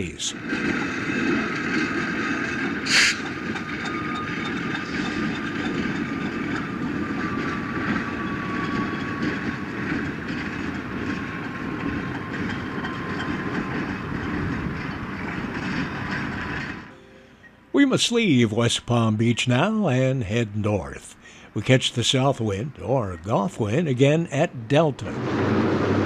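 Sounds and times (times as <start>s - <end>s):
train rumbling with wheel clicks: 0.0s - 17.0s.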